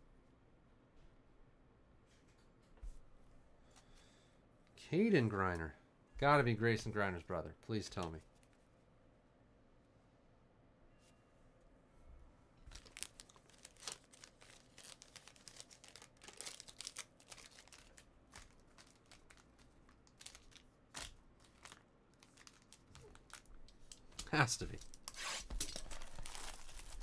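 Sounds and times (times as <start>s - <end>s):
wrappers crinkling and tearing: 12.7s - 27.0s.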